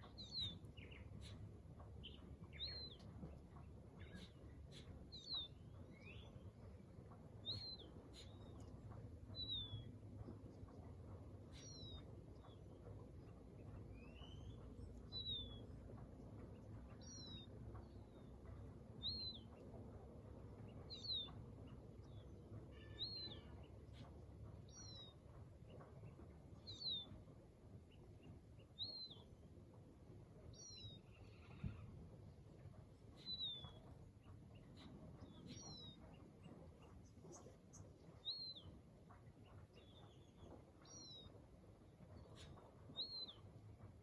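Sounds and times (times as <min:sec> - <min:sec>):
faint low rumble: 0:00.0 - 0:44.0
bird calling: 0:33.1 - 0:38.7.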